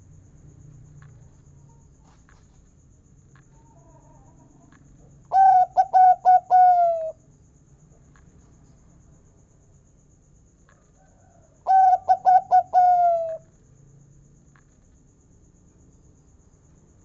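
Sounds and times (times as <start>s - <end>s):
dove cooing: 5.3s - 7.2s, 11.7s - 13.4s.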